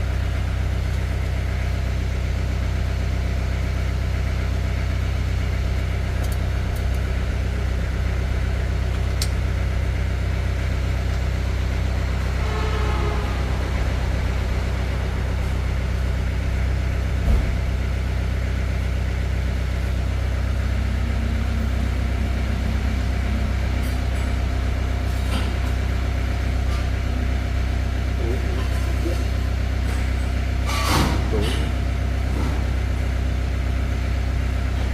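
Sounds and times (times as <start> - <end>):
engine idling: 0.0 - 34.9
short thump: 17.2 - 17.6.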